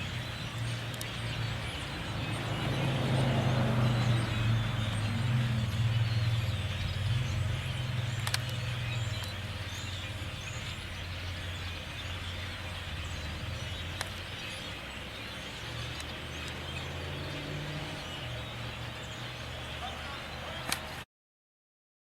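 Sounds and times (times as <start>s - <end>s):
starlings chirping: 0.0s - 21.0s
sharp clicks: 8.1s - 8.6s, 20.6s - 20.9s.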